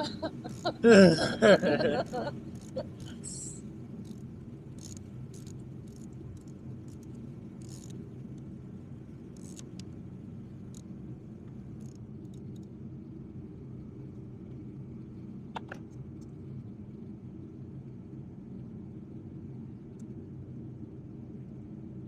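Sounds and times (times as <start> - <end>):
steady low rumble: 0.0 - 22.0
ratchet clicking: 4.8 - 8.0, 9.4 - 9.8.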